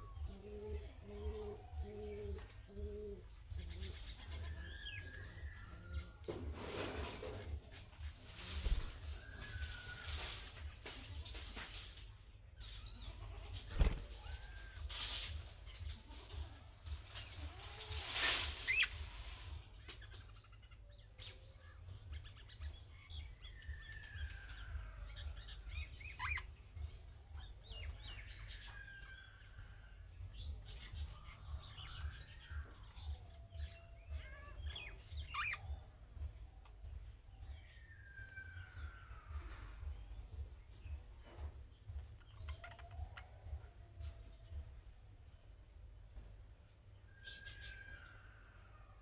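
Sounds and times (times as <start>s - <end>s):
budgerigars chirping: 25.4s - 26.6s, 30.8s - 35.9s.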